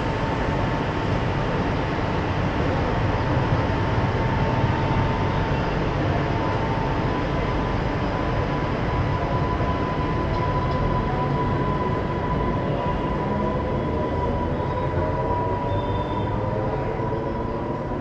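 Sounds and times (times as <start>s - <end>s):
high whine of train motor: 0.0s - 18.0s
train running rumble: 0.0s - 18.0s.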